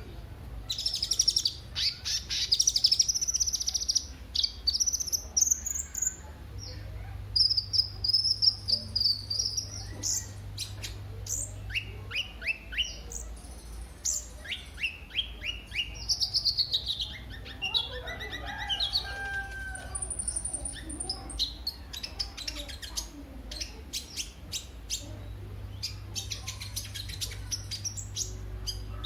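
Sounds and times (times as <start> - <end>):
sunbird chirping: 0.0 - 29.0
steady low hum: 23.1 - 29.0.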